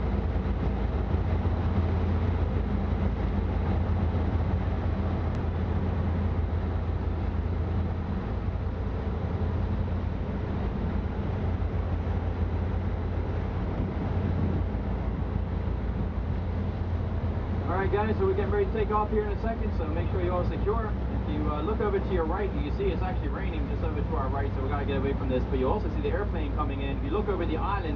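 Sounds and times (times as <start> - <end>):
boat engine idling: 0.0 - 27.9.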